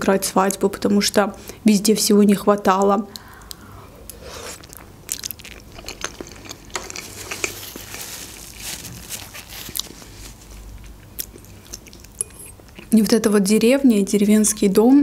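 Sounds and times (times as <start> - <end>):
person chewing food: 3.2 - 13.0.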